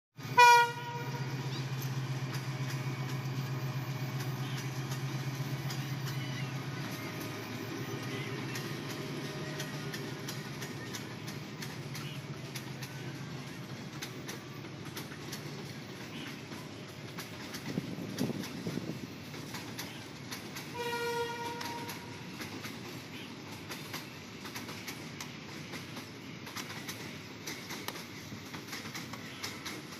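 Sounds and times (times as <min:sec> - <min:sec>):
locomotive horn blast: 0:00.2 - 0:01.4, 0:20.7 - 0:22.3
locomotive engine rumbling: 0:00.2 - 0:29.9
train wheels clacking on rails: 0:00.2 - 0:29.9.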